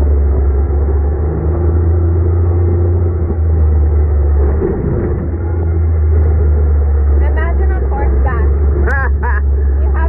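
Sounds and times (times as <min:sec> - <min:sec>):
vehicle engine droning: 0:00.0 - 0:10.0.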